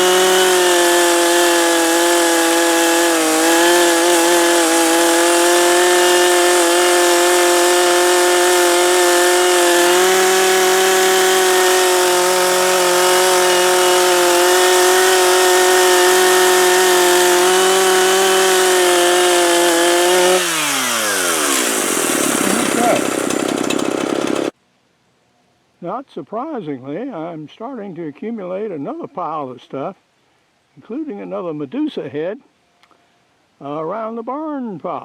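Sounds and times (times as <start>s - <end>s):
chainsaw cutting wood: 0.0s - 24.6s.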